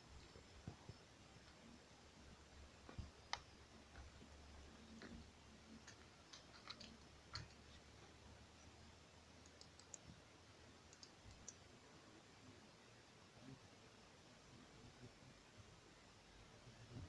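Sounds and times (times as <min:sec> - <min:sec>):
faint clicks: 0:02.8 - 0:04.2, 0:09.4 - 0:10.2, 0:10.9 - 0:11.7.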